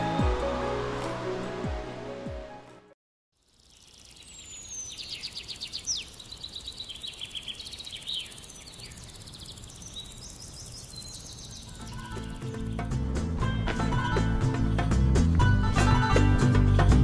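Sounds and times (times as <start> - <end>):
small birds singing: 3.4 - 13.0.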